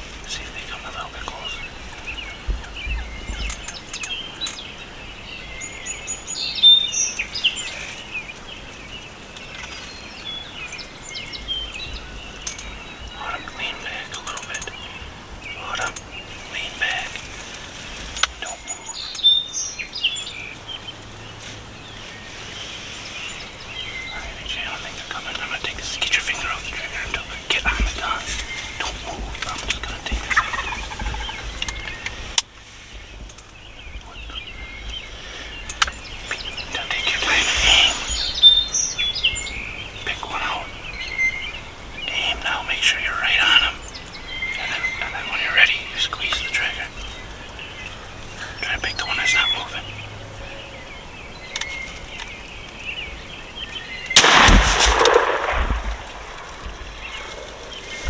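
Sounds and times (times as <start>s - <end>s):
small birds chirping: 0.0s - 58.0s
wild turkeys calling: 0.0s - 58.0s
gunshot with echo: 54.2s - 58.0s
low rumble: 54.2s - 58.0s
sharp click: 54.2s - 58.0s.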